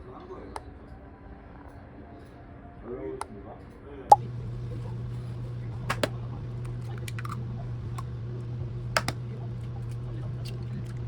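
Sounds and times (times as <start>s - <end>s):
steady low motor hum: 4.1s - 11.0s.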